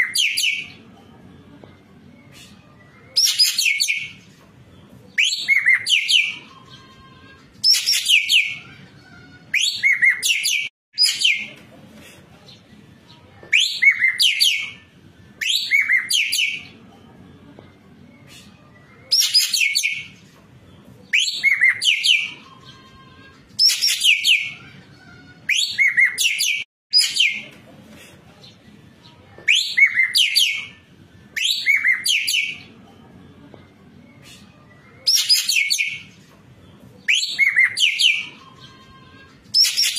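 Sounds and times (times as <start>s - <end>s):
bird chirping and whistling: 0.0s - 0.7s, 3.2s - 4.2s, 5.2s - 6.8s, 7.6s - 8.6s, 9.5s - 11.5s, 13.6s - 14.8s, 15.4s - 16.7s, 19.1s - 20.1s, 21.1s - 22.5s, 23.6s - 24.6s, 25.5s - 27.5s, 29.5s - 30.7s, 31.4s - 32.6s, 35.1s - 36.1s, 37.1s - 38.7s, 39.6s - 39.9s.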